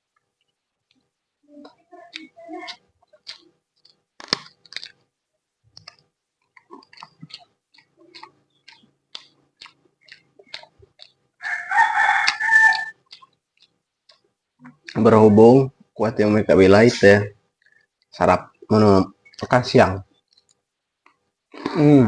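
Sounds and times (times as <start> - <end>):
chewing and crunching food: 0.0 - 22.0
harsh pitched cry: 11.4 - 13.0.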